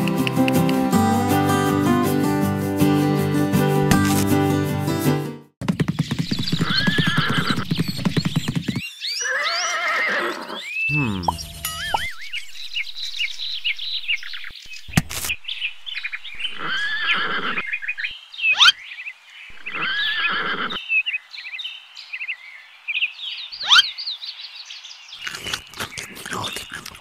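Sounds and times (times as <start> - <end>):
high bird chirps: 6.0 - 20.8
horse whinnying: 6.6 - 7.7, 9.2 - 11.4, 16.5 - 18.0, 19.5 - 20.8.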